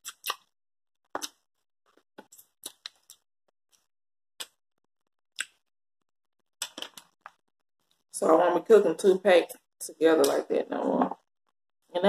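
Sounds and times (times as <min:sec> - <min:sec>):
wet mouth clicks and smacks: 0:00.0 - 0:00.5, 0:02.6 - 0:03.2
person chewing food: 0:00.0 - 0:04.6.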